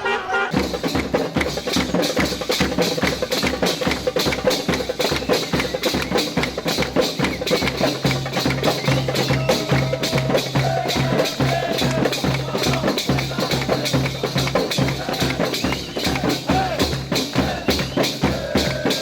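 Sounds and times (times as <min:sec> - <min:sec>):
fast percussion: 0:00.0 - 0:19.0.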